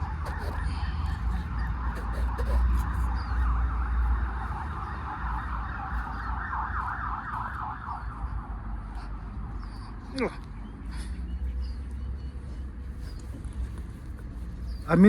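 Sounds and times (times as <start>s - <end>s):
fire truck siren wail and yelp: 0.0s - 8.8s.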